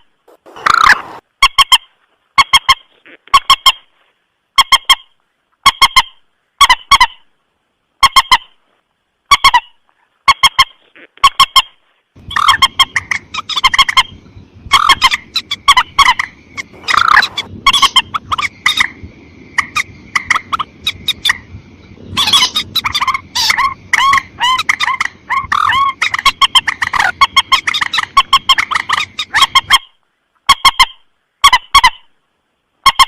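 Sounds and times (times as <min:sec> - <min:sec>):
background hiss: 0:00.0 - 0:32.9
rail honking calls: 0:12.2 - 0:29.7.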